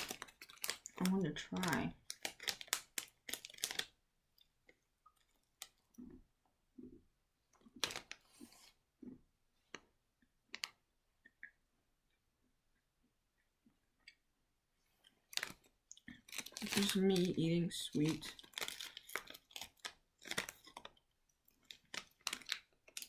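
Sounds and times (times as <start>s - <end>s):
plastic wrapper crinkling: 0.0s - 6.0s, 7.6s - 8.7s, 15.0s - 23.0s
soft chewing: 2.0s - 17.0s.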